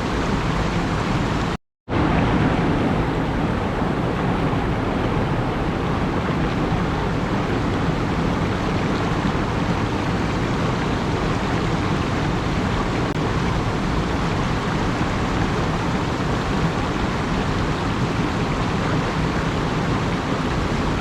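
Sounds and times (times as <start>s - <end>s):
steady low rushing noise: 0.0s - 17.7s.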